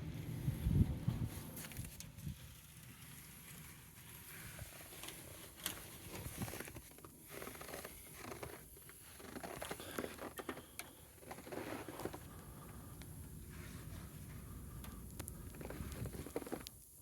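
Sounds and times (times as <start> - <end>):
footsteps crunching in snow: 11.2 - 12.4, 15.4 - 16.7.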